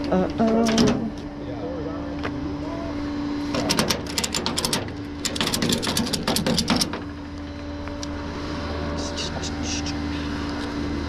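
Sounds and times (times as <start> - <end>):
rapid clicking and rattling: 3.5 - 7.2.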